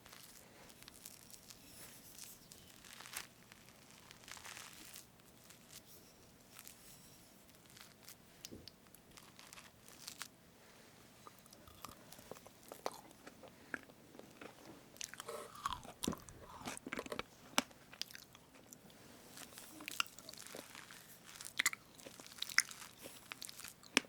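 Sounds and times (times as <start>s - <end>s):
wet chewing: 11.2s - 24.0s.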